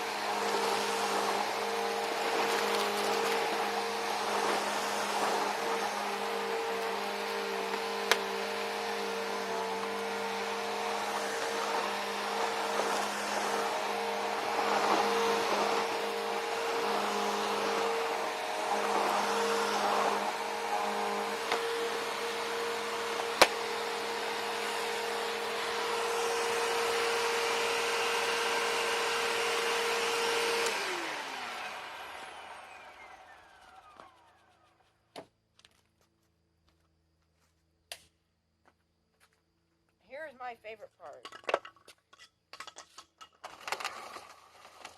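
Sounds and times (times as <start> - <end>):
upright vacuum running: 0.0 - 34.7.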